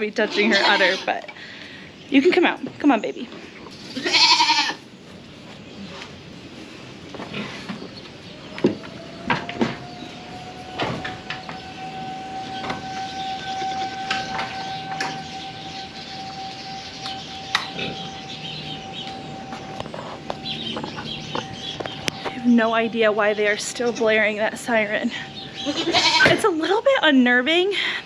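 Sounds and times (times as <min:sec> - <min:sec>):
distant warning siren: 0:08.1 - 0:28.0.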